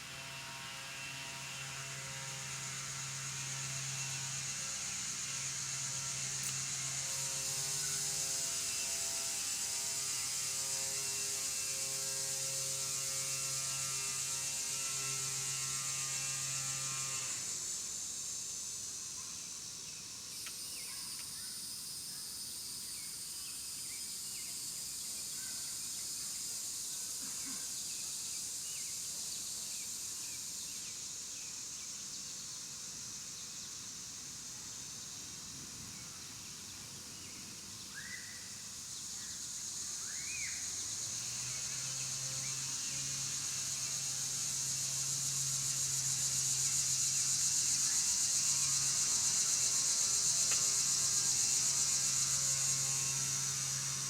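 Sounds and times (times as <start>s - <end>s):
high-pitched drone or hiss: 37.9s - 54.0s.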